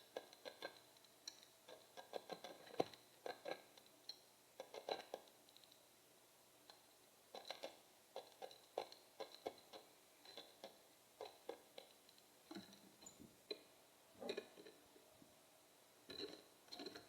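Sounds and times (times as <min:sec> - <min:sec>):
bird pecking and cracking seed: 0:00.1 - 0:05.8, 0:06.7 - 0:12.8.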